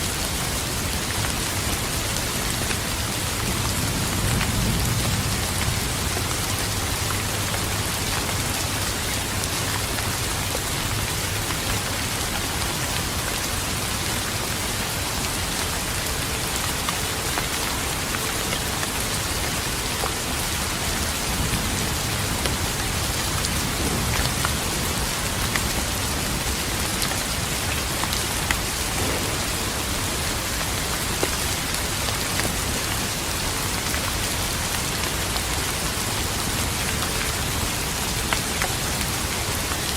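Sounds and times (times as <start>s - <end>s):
heavy rain with dripping drops: 0.0s - 39.9s
low thunder rumble: 2.4s - 11.0s, 28.6s - 32.7s.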